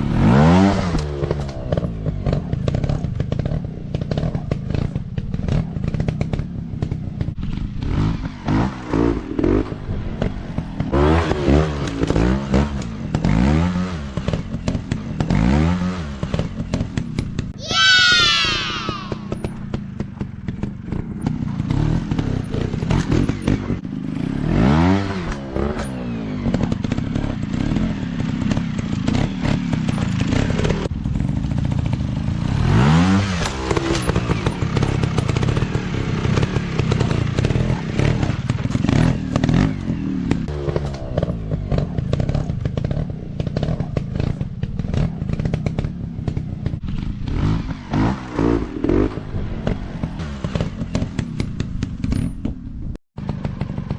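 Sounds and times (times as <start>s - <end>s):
dirt bike engine revving: 17.6s - 19.6s, 20.5s - 52.1s.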